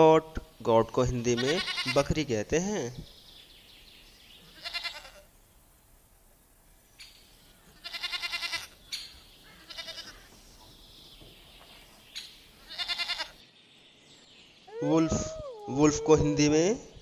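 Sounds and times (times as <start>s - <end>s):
goat bleating: 1.3s - 2.1s, 4.4s - 5.3s, 7.8s - 8.8s, 9.4s - 10.3s, 12.6s - 13.4s.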